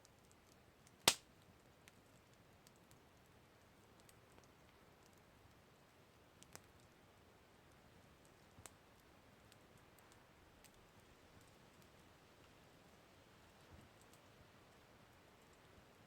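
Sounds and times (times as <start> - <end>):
campfire crackling: 0.0 - 16.0
faint steady hiss: 0.0 - 16.0.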